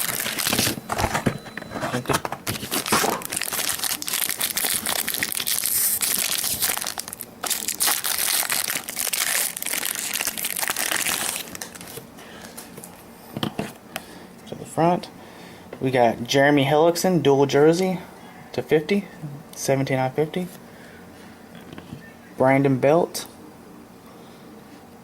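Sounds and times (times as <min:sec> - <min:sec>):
plastic wrapping crinkling and tearing: 0:00.0 - 0:01.2, 0:01.8 - 0:12.7.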